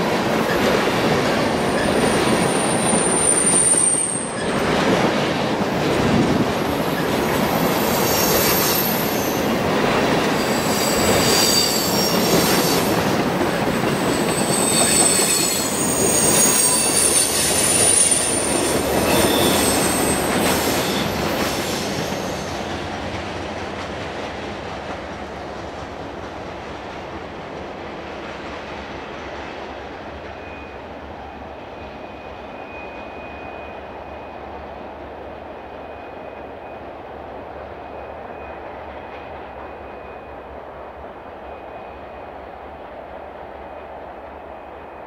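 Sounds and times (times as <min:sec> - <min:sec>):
train wheels clicking over rail joints: 0:00.0 - 0:30.6
train rumble: 0:00.0 - 0:45.0
high squeal of wheels: 0:01.6 - 0:04.6, 0:06.9 - 0:09.5, 0:10.4 - 0:13.0, 0:13.9 - 0:22.8, 0:30.4 - 0:30.9, 0:31.8 - 0:34.4.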